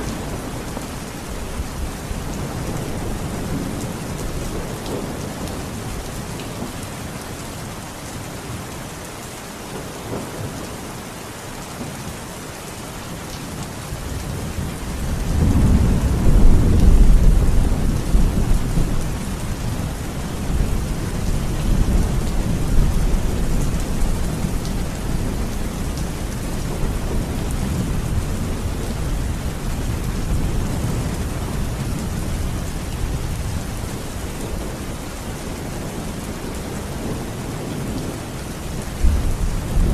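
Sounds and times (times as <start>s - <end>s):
steady rain: 0.0s - 39.9s
rolling thunder: 14.3s - 34.8s, 38.8s - 39.9s.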